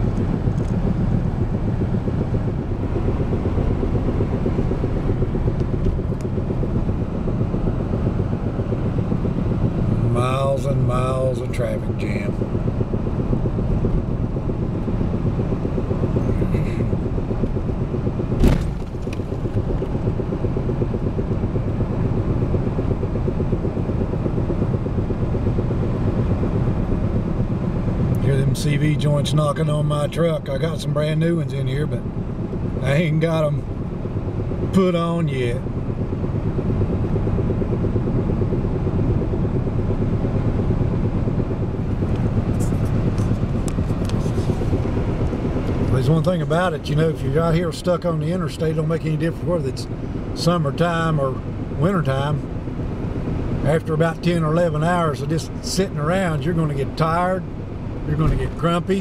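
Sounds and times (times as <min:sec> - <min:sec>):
rapid knocking of cv joints: 0:00.0 - 0:09.9, 0:11.8 - 0:27.5, 0:35.6 - 0:46.0
truck low rumble: 0:00.0 - 0:59.0
sharp thump: 0:18.4 - 0:20.0.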